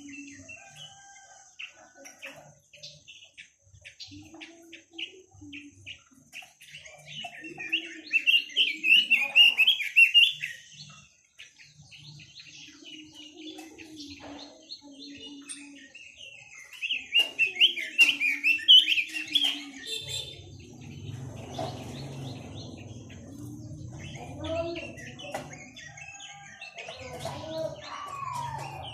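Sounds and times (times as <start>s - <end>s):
songbird warbling: 14.9s - 28.9s.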